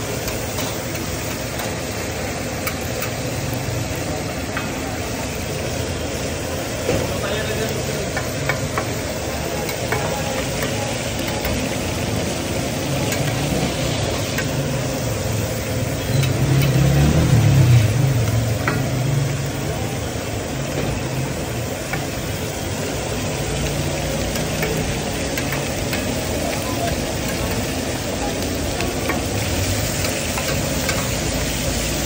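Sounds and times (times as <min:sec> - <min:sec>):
liver sizzling on a griddle: 0:00.0 - 0:32.0
low engine rumble: 0:00.1 - 0:32.0
metal spatula clicking on griddle: 0:02.6 - 0:03.2, 0:13.1 - 0:13.4, 0:24.3 - 0:26.3, 0:26.9 - 0:27.7, 0:29.9 - 0:31.2.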